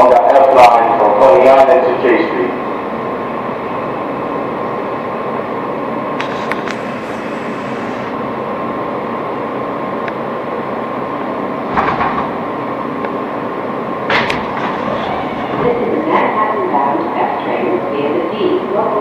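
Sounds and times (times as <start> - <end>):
subway car rumble and hum: 0.0 - 19.0
whine-like tone: 12.6 - 17.8.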